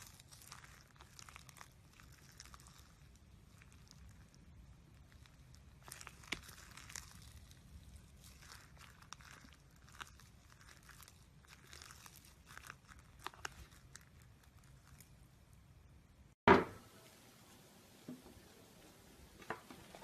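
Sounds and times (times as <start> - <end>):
slime crackling and crinkling: 0.0 - 15.6.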